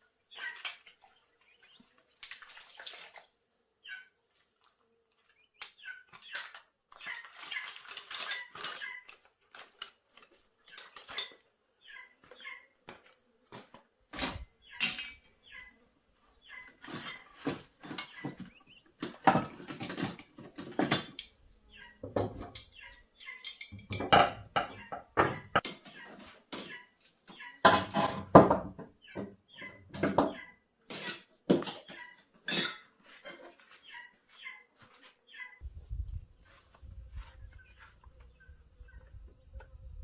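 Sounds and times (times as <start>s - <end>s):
hard objects clinking and clattering: 6.4s - 8.8s.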